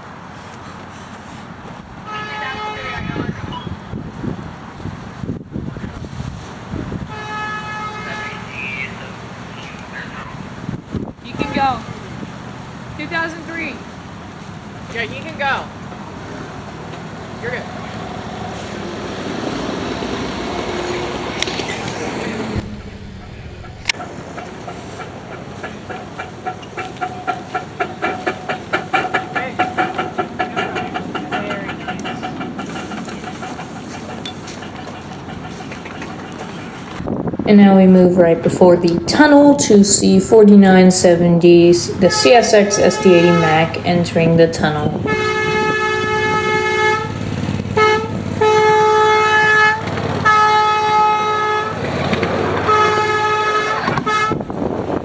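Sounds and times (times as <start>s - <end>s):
locomotive horn blasts: 2.0s - 4.1s, 6.9s - 10.5s, 11.3s - 12.2s, 37.5s - 54.8s
train wheels clicking over rail joints: 7.3s - 37.1s, 38.7s - 55.0s.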